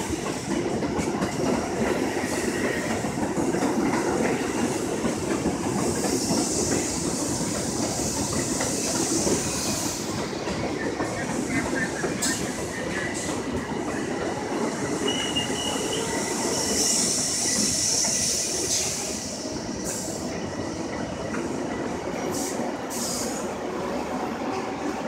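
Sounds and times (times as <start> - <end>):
train wheels rumbling on rail: 0.0 - 25.0
high wheel squeal: 15.0 - 19.1.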